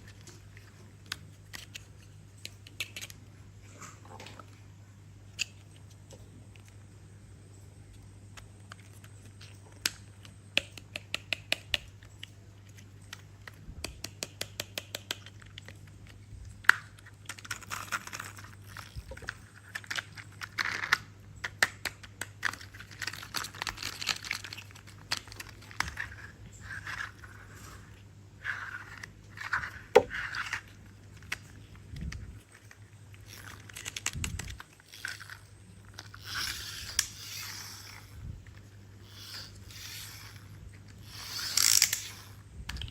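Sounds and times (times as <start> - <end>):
plastic toy parts rustling: 0.0 - 4.6, 5.3 - 6.9, 14.8 - 42.9
plastic toy parts clicking: 1.0 - 3.2, 5.3 - 6.8, 8.3 - 27.4, 28.4 - 42.9.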